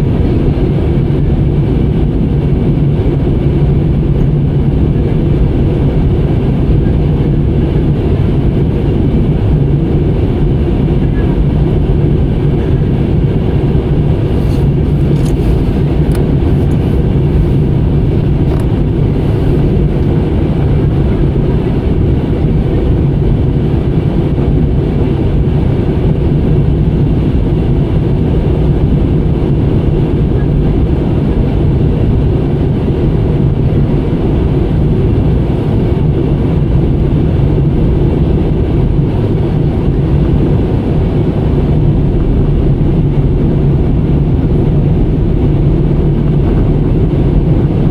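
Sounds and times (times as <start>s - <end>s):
airliner engine and airflow rumble: 0.0s - 47.9s
faint clicks: 14.3s - 20.1s.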